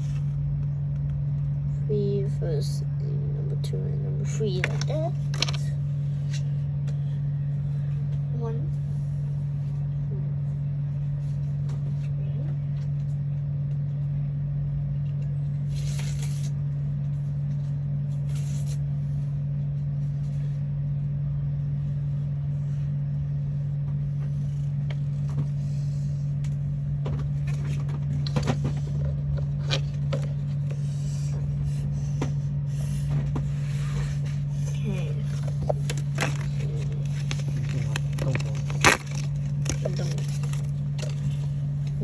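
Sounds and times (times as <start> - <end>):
steady low hum: 0.0 - 42.0
paper parts being handled: 4.6 - 5.7, 15.7 - 16.5, 32.7 - 42.0.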